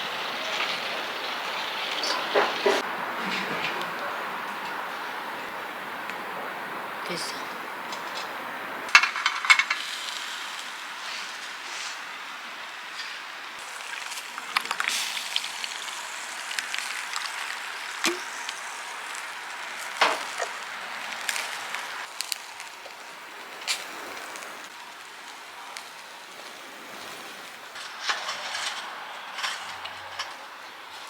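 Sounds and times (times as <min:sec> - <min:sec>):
food sizzling: 0:08.4 - 0:31.0.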